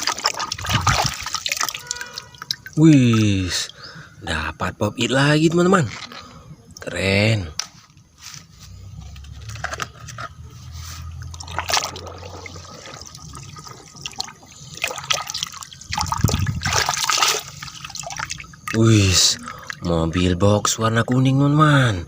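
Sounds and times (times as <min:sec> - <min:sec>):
water trickling and splashing: 0:00.0 - 0:04.1, 0:08.9 - 0:21.8.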